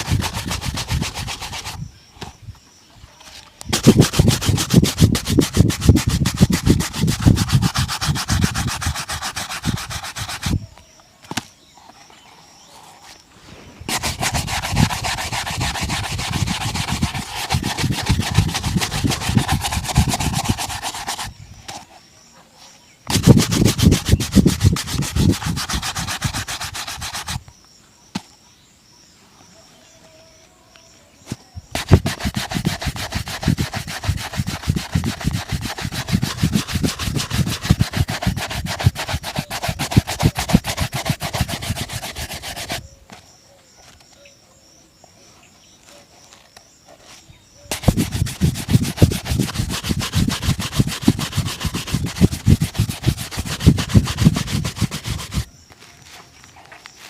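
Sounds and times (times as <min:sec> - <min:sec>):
shoe being buffed: 0:00.0 - 0:01.8, 0:03.7 - 0:10.6, 0:13.9 - 0:21.8, 0:23.1 - 0:27.4, 0:31.7 - 0:42.8, 0:47.7 - 0:55.5.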